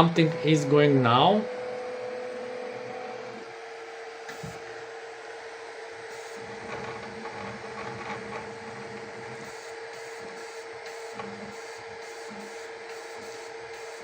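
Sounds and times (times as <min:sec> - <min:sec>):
printer fan hum: 0:00.0 - 0:14.0
stepper motors whirring and ticking: 0:06.2 - 0:14.0.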